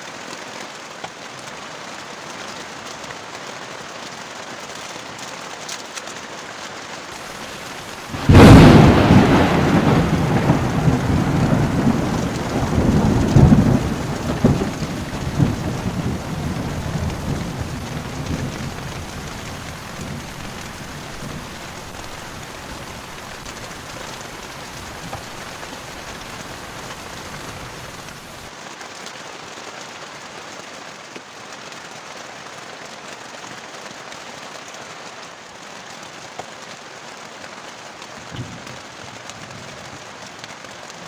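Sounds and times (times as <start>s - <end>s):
heavy rain falling: 0.0s - 41.0s
rumbling thunder: 7.4s - 28.4s.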